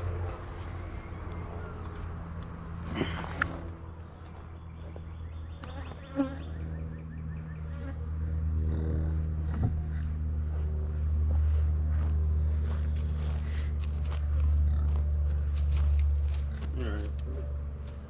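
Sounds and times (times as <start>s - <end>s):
honey bees buzzing: 0.0s - 8.6s.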